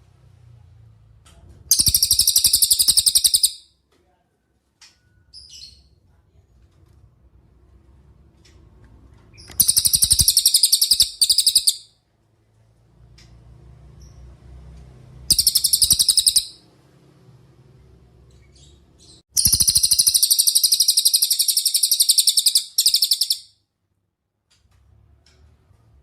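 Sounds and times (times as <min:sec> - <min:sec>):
bird singing rapid high trills: 0:01.7 - 0:03.6, 0:09.6 - 0:11.9, 0:15.3 - 0:16.6, 0:18.6 - 0:23.5.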